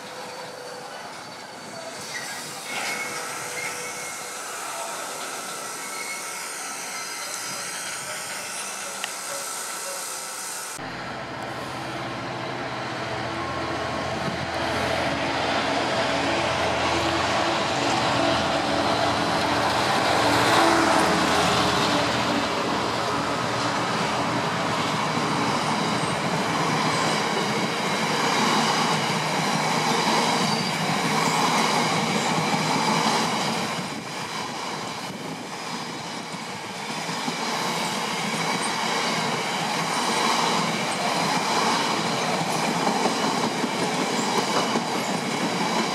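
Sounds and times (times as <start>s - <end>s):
diesel locomotive engine passing: 0.0s - 45.9s
train wheels clattering on rails: 24.6s - 45.9s.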